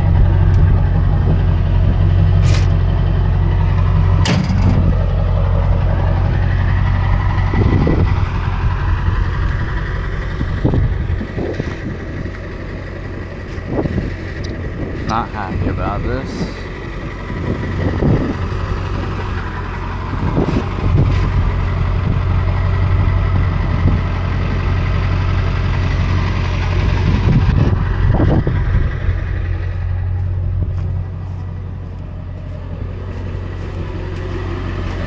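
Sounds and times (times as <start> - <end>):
clunks and rattles: 0.0 - 15.2
truck engine idling: 0.0 - 35.0.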